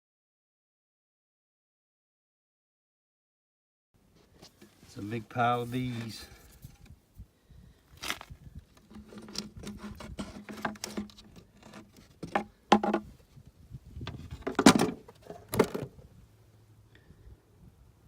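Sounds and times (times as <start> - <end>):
wooden hive box being handled: 4.2 - 7.0, 8.0 - 16.0.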